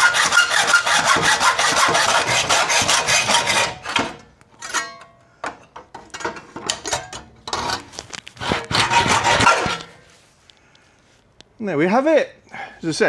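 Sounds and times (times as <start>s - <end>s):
hacksaw cutting steel: 0.0s - 4.2s, 8.4s - 10.1s.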